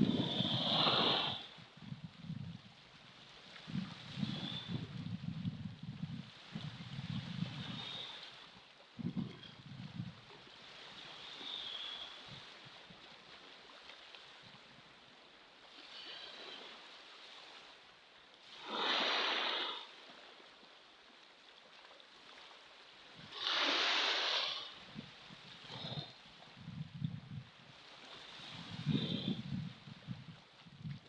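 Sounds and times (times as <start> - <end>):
ocean waves washing in: 0.0 - 1.7, 3.2 - 5.0, 15.6 - 20.6, 22.4 - 26.7, 27.4 - 30.4.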